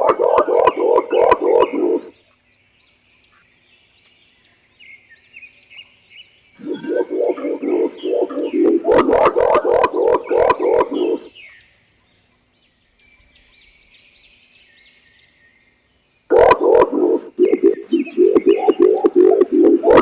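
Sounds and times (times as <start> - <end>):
pigeon deep rolling coo: 0.0 - 2.1, 6.6 - 11.3, 16.3 - 20.0
high bird chirps: 0.0 - 2.4, 6.6 - 11.6, 16.3 - 20.0.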